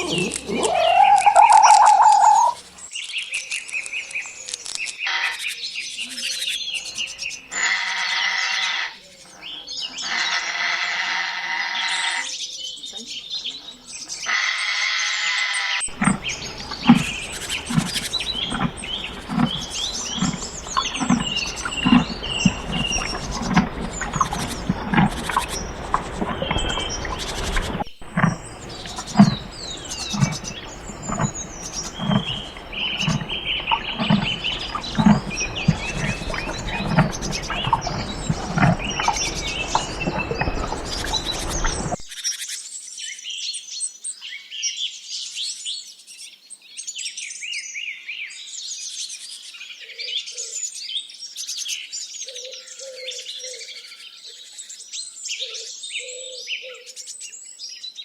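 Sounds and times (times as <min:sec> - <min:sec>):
short low calls: 0:00.0 - 0:02.6, 0:15.9 - 0:42.0
birds chirping and singing: 0:00.0 - 0:04.4, 0:15.9 - 0:42.1
steady rumbling noise: 0:15.9 - 0:42.1.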